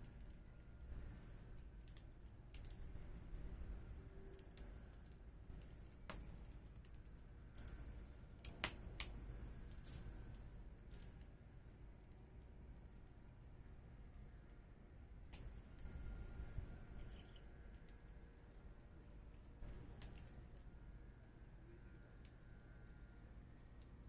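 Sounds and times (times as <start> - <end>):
wood fire crackling: 0.0 - 24.0
fire pops and snaps: 4.5 - 10.1, 15.3 - 15.9, 19.2 - 20.7.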